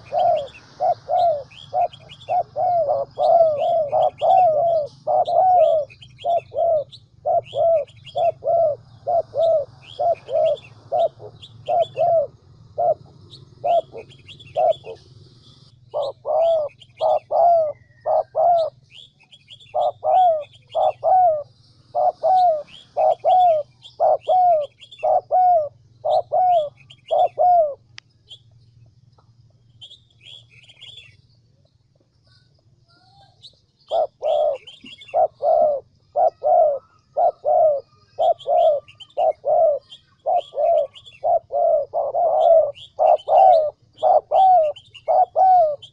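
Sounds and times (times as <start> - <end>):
dove cooing: 0.0 - 28.0, 32.3 - 45.9
small birds chirping: 0.0 - 45.9
steady low hum: 0.0 - 45.9.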